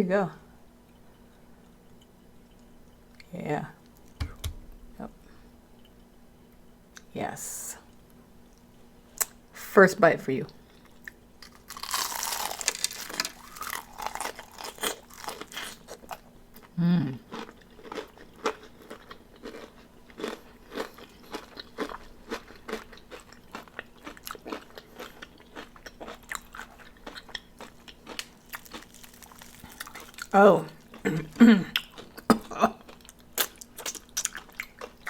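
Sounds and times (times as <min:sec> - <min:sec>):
crunching and chewing fried chicken: 0:10.6 - 0:35.0.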